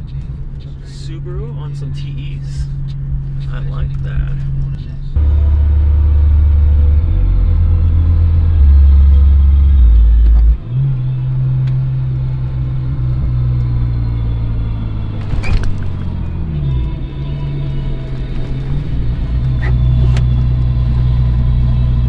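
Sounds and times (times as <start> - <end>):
engine and road drone in car: 0.0 - 22.0
brief rattle: 15.0 - 21.4.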